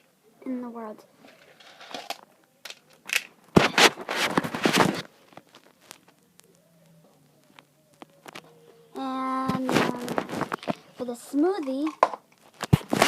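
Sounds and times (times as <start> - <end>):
beads clattering into a dish: 1.5 - 3.3, 11.6 - 12.3.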